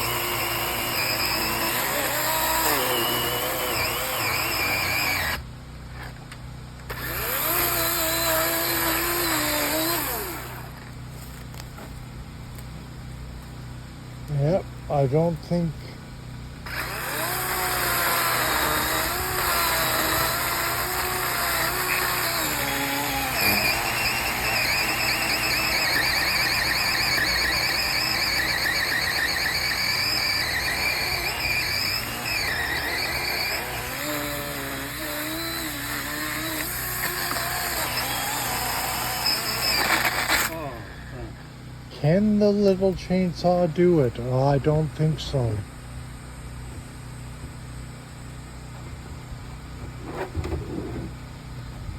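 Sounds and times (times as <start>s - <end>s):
chainsaw running: 0.0s - 6.1s, 6.8s - 11.7s, 16.5s - 41.3s.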